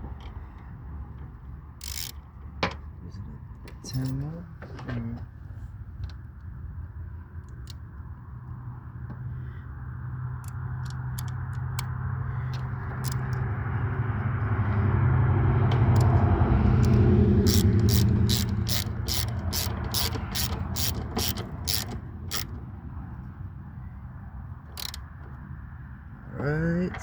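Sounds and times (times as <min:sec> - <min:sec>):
ratchet wrench clicking: 0:01.8 - 0:02.3, 0:10.4 - 0:13.5, 0:15.7 - 0:22.6, 0:24.7 - 0:25.2
mechanical whirr: 0:16.8 - 0:22.5.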